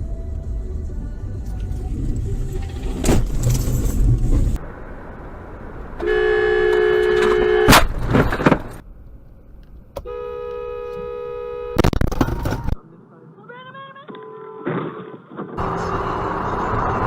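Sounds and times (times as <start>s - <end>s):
loud low rumble: 0.0s - 7.5s
car horn blast: 6.0s - 8.0s, 10.0s - 11.9s.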